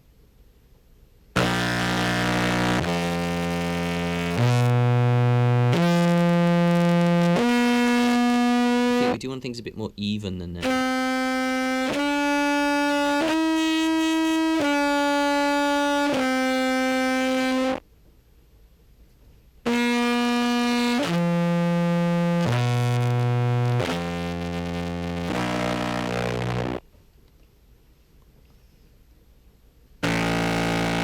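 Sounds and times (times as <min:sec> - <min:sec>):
buzzy distorted clarinet notes: 0:01.4 - 0:09.5, 0:10.3 - 0:17.8, 0:19.6 - 0:26.8, 0:30.0 - 0:31.0.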